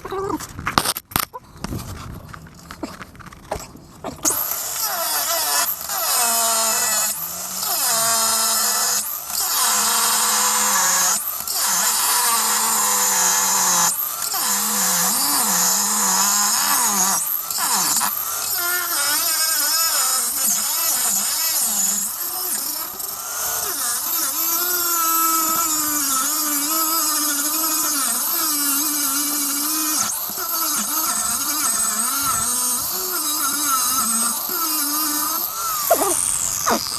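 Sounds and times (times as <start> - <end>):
power tool cutting steel: 4.2 - 36.9.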